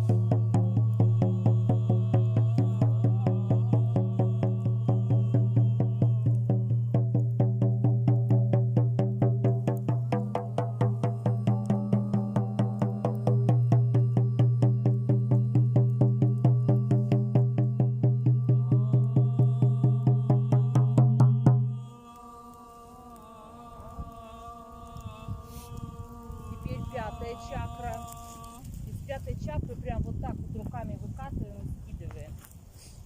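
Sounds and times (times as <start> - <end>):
low drone: 0.0 - 7.6, 9.2 - 28.7
rhythmic drumming: 0.0 - 21.8
faint sustained tones: 9.6 - 28.8.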